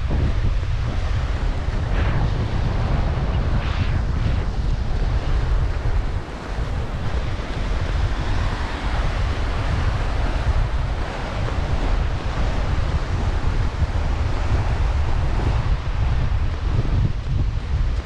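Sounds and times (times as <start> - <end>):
surf breaking on beach: 0.0 - 18.0
wind buffeting microphone: 0.0 - 18.0.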